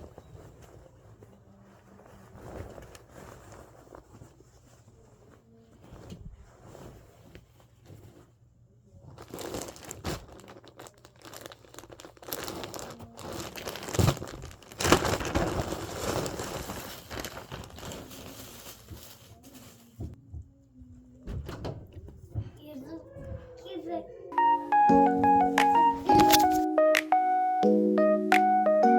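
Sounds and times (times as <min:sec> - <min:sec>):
packaging crinkling and rustling: 0:00.0 - 0:08.3, 0:09.0 - 0:20.2, 0:26.0 - 0:26.7.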